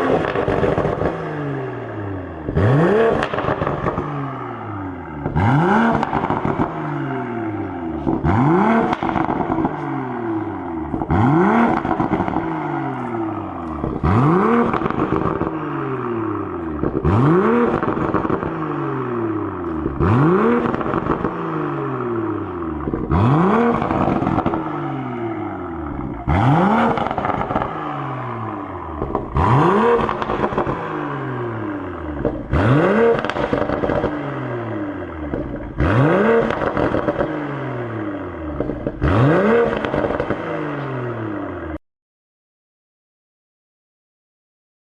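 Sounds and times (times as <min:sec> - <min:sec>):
exhaust pops and crackles: 0:00.0 - 0:01.3, 0:02.4 - 0:04.2, 0:05.2 - 0:07.0, 0:08.0 - 0:15.7, 0:16.6 - 0:18.6, 0:19.6 - 0:21.4, 0:22.8 - 0:24.8, 0:25.9 - 0:27.9, 0:28.9 - 0:31.0, 0:32.1 - 0:34.4, 0:35.0 - 0:37.5, 0:38.5 - 0:40.6
car engine revving: 0:00.0 - 0:41.8.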